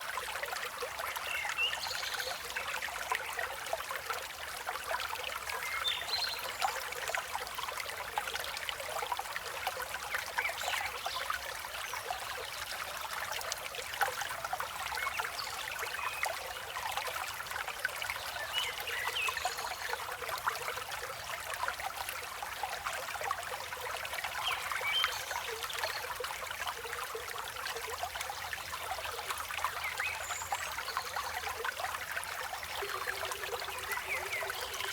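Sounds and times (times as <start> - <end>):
river water babbling: 0.0 - 34.9
birds chirping: 32.8 - 34.9.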